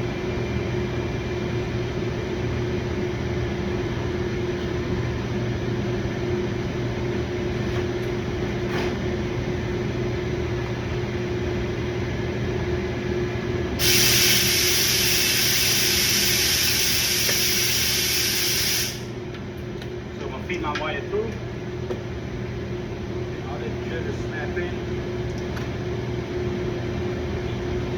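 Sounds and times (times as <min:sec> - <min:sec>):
low mechanical hum: 0:00.0 - 0:27.9
loud even hiss: 0:13.8 - 0:19.1.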